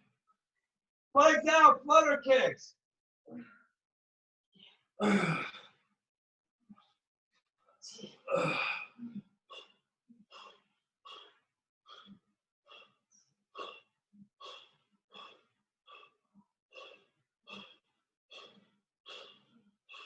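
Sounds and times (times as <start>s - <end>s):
person breathing hard: 10.3s - 13.0s, 13.6s - 20.0s.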